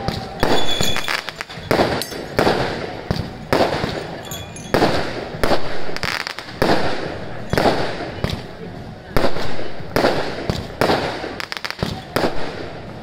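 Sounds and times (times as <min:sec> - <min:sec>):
firework shells bursting: 0:00.4 - 0:06.9.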